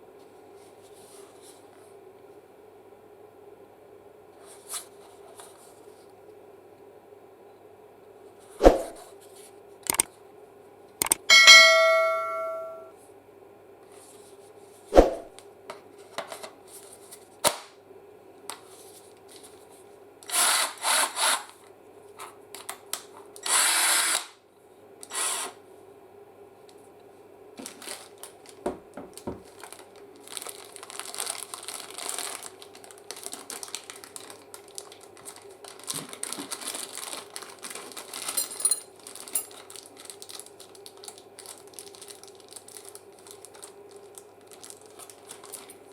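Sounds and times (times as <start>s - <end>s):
cordless drill bursts: 20.3s - 21.4s, 23.4s - 24.3s, 25.1s - 25.6s.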